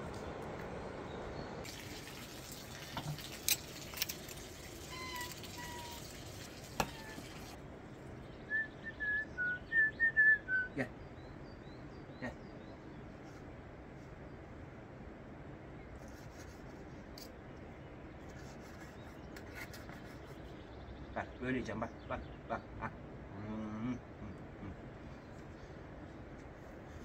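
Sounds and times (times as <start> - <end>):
steady outdoor hush: 0.0 - 27.0
small bird singing: 4.9 - 6.1.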